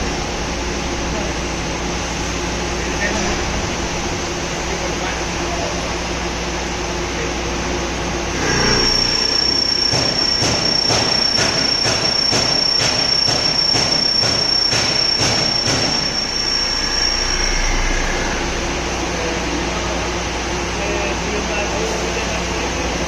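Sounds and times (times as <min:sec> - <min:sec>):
drilling machine high-pitched squeal: 0:08.4 - 0:20.1
repeated machine ticks: 0:09.0 - 0:16.6.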